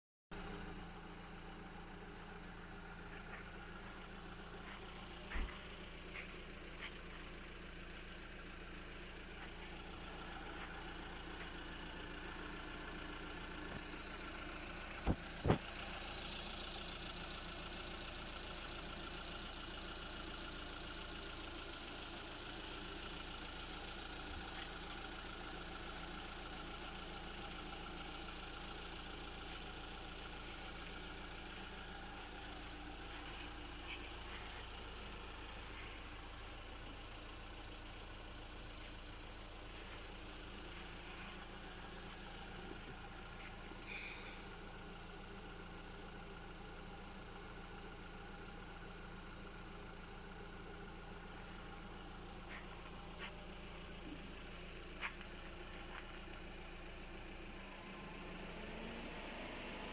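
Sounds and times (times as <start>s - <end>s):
car engine idling: 0.3s - 59.9s
hiss: 13.6s - 18.1s.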